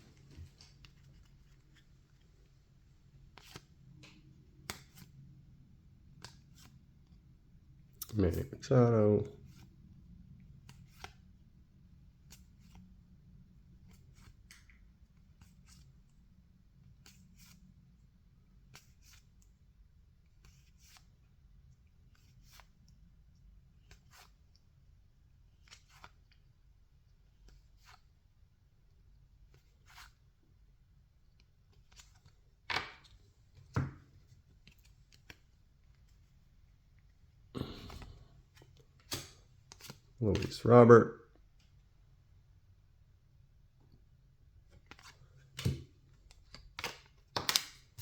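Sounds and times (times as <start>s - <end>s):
cards sliding off one another: 3.3s - 3.7s, 37.6s - 40.5s
trading cards flipped through: 3.3s - 5.1s, 6.2s - 6.8s, 10.6s - 11.2s, 22.1s - 22.7s, 25.5s - 26.2s, 29.5s - 30.3s, 31.7s - 33.9s, 34.5s - 36.1s, 37.7s - 40.5s, 44.8s - 48.0s.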